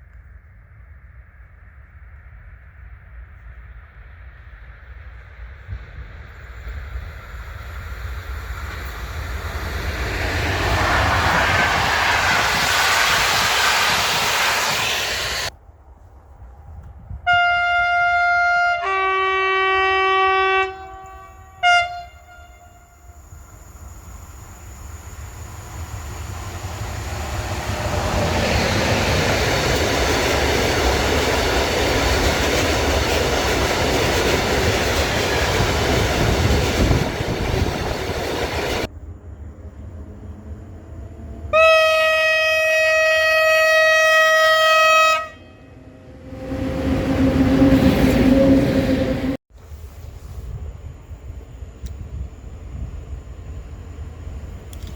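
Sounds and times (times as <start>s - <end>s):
train passing on rails: 0.0s - 54.9s
train horn: 17.2s - 23.3s, 41.5s - 49.4s.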